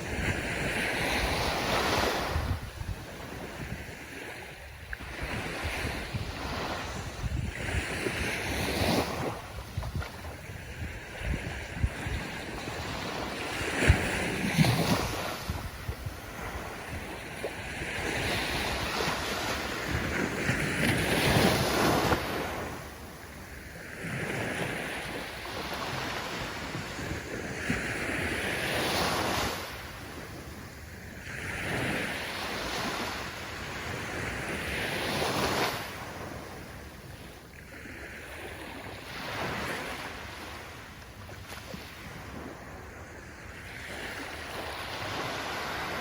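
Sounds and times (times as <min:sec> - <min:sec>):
ocean waves breaking on shore: 0:00.0 - 0:46.0.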